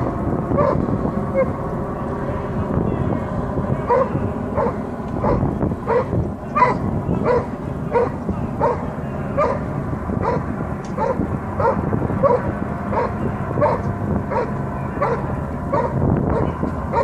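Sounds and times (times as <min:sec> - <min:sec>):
low rumble: 0:00.0 - 0:17.0
dog barking: 0:03.9 - 0:08.8, 0:09.4 - 0:09.6, 0:10.2 - 0:10.4, 0:11.0 - 0:17.0.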